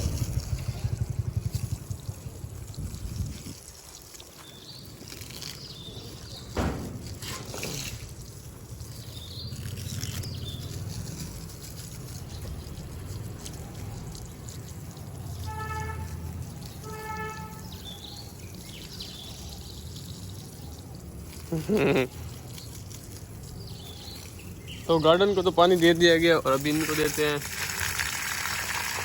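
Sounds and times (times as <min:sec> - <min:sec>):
water pouring from hose: 0:00.0 - 0:29.0
sharp knock: 0:06.6 - 0:08.0.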